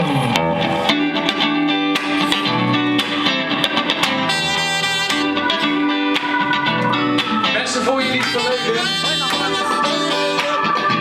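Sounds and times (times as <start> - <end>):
guitar music: 0.0 - 11.0.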